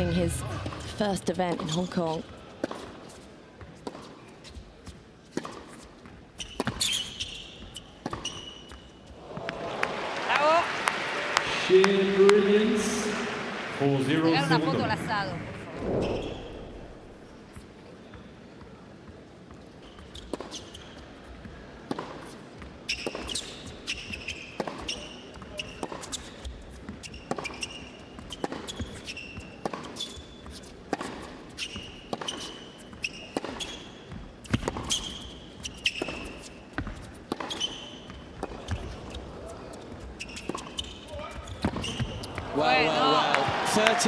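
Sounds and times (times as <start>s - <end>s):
shoes squeaking on court: 1.4s - 9.5s, 14.4s - 42.6s
tennis racket striking ball: 28.4s - 39.1s.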